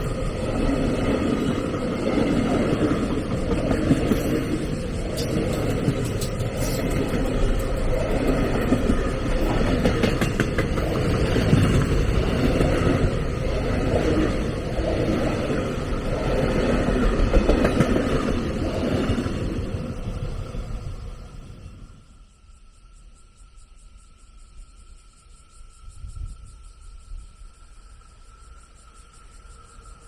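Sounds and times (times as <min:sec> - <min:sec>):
train wheels rumbling on rails: 0:00.0 - 0:22.1.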